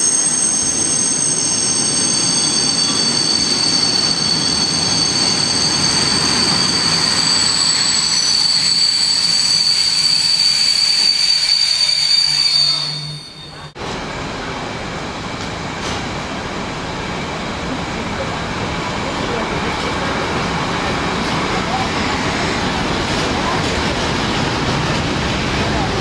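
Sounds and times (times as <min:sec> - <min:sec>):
freight train rumbling past: 0:00.0 - 0:11.6, 0:12.2 - 0:26.0
high-pitched wheel squeal: 0:00.0 - 0:13.8.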